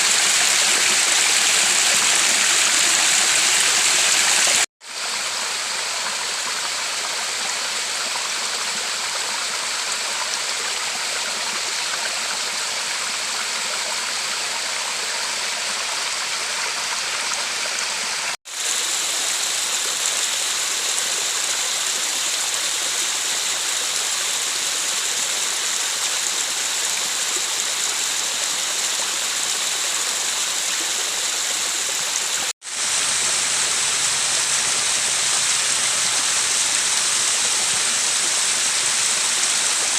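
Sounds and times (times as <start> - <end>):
river water rushing over rocks: 0.0 - 4.7.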